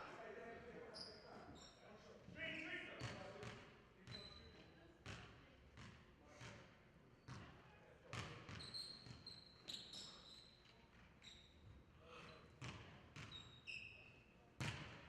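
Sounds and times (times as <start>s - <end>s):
sneaker squeaks: 0.9s - 1.8s, 4.0s - 4.6s, 8.2s - 14.8s
basketball bouncing on court: 3.0s - 4.4s, 5.0s - 6.6s, 7.3s - 7.5s, 8.1s - 9.3s, 12.6s - 13.4s, 14.6s - 15.0s.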